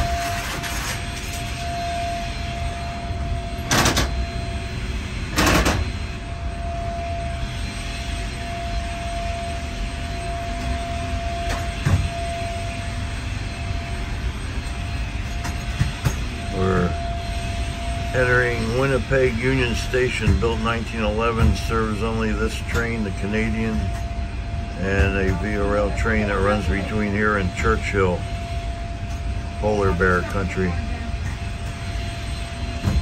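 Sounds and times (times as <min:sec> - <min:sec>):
train interior low rumble: 0:14.6 - 0:33.0.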